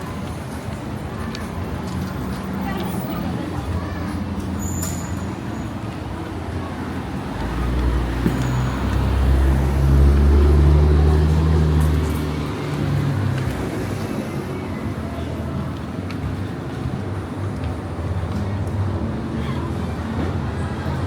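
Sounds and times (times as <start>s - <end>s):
traffic noise: 0.0s - 21.0s
vehicle engine hum passing: 7.2s - 17.0s.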